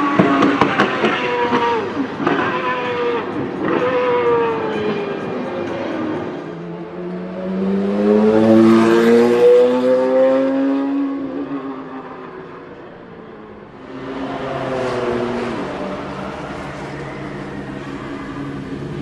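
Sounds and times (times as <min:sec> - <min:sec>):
race car accelerating past: 0:00.0 - 0:12.6, 0:13.8 - 0:19.0
car passing: 0:00.0 - 0:19.0.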